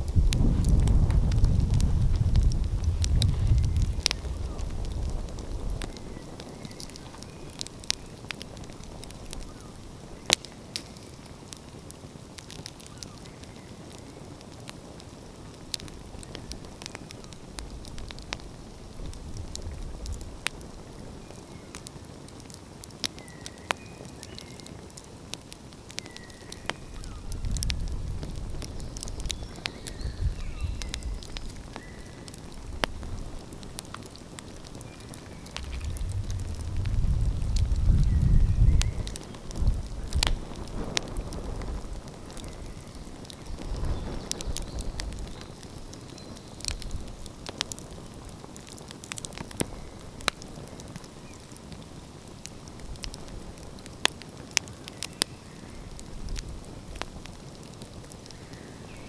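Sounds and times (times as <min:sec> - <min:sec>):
wood fire crackling and popping: 0:00.0 - 0:59.0
low rumble: 0:35.5 - 0:39.9.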